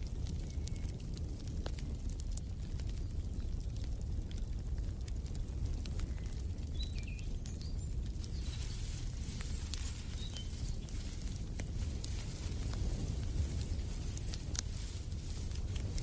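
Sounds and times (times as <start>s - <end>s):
wood fire crackling: 0.0s - 16.0s
bird chirps: 10.1s - 10.8s.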